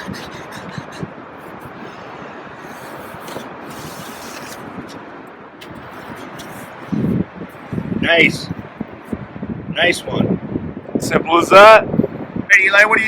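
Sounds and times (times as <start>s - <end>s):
digging in wet sand: 1.4s - 7.2s.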